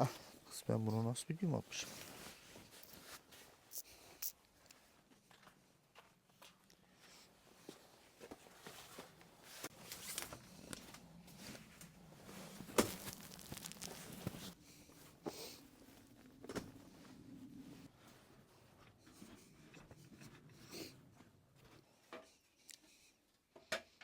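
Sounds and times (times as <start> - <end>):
rustling and handling noises: 0.0 - 5.2, 7.5 - 17.1.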